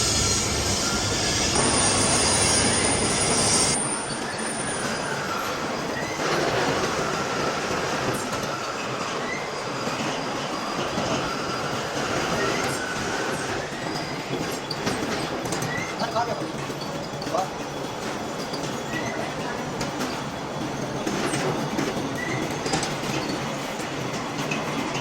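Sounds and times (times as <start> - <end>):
lathe cutting metal: 0.0 - 10.7
faint wavering squeal: 0.0 - 14.8.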